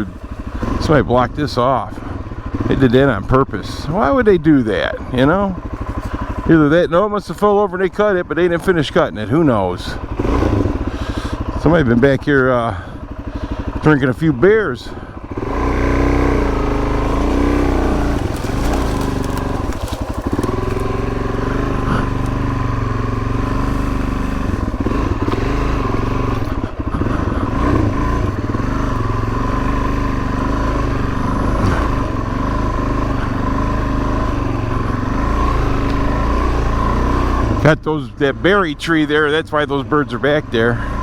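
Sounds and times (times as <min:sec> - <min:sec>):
dirt bike engine revving: 0:00.0 - 0:01.4, 0:05.0 - 0:06.7, 0:09.9 - 0:11.8, 0:14.8 - 0:37.6.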